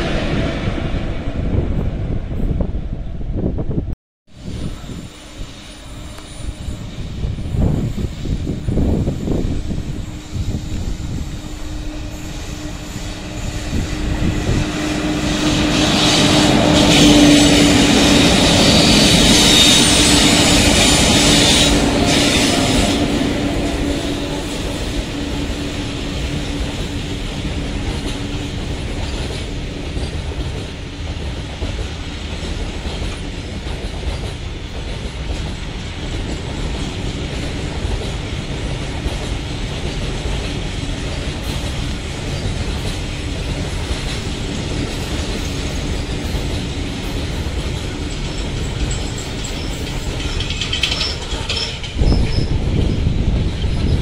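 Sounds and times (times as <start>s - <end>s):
low train rumble: 0.0s - 54.0s
high wheel squeal: 4.4s - 23.0s, 48.1s - 52.6s
wheels clattering over rail joints: 26.8s - 54.0s.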